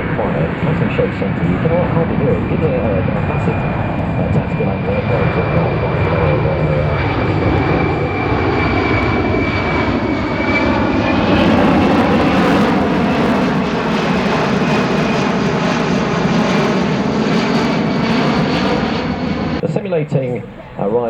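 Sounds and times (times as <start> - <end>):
jet engine roar with whine: 0.0 - 21.0.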